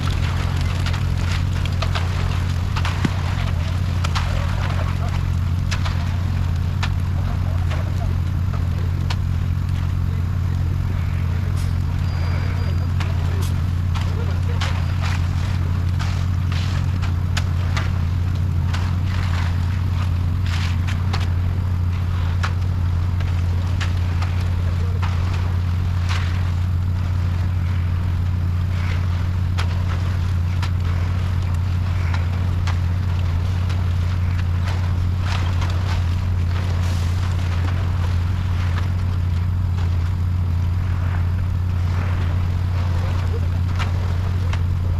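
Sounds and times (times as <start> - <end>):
truck engine running: 0.0 - 44.9.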